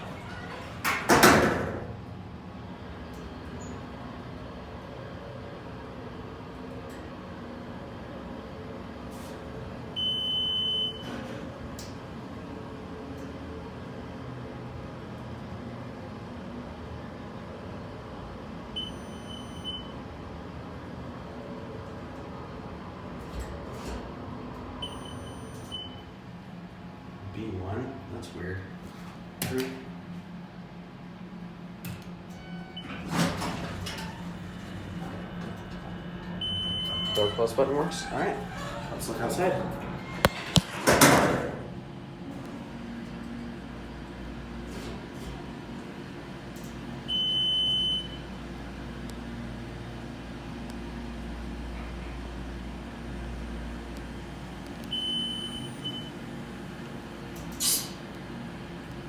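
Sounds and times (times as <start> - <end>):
elevator doors sliding shut: 0.0 - 2.1, 21.9 - 25.7, 32.1 - 48.6
elevator hum: 0.0 - 27.3, 30.0 - 59.0
elevator electronic beep: 10.0 - 11.2, 18.8 - 20.0, 24.8 - 26.1, 32.4 - 33.0, 35.3 - 37.4, 47.1 - 48.3, 54.9 - 56.2.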